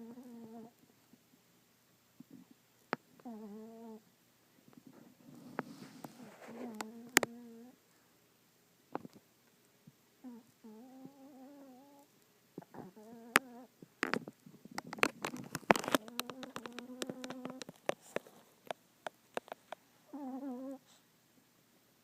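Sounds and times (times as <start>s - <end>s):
dog snoring with high whines: 0.0s - 0.8s, 3.2s - 4.0s, 5.2s - 7.8s, 10.2s - 14.2s, 15.8s - 18.3s, 20.1s - 21.0s.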